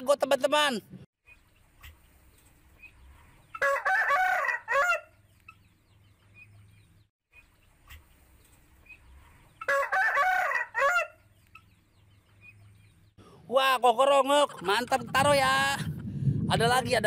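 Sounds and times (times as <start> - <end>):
rooster crowing: 3.6 - 5.1, 9.6 - 11.2.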